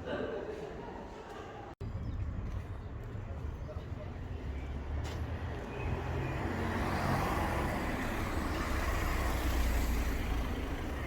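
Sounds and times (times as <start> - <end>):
vehicle passing: 5.3 - 11.0.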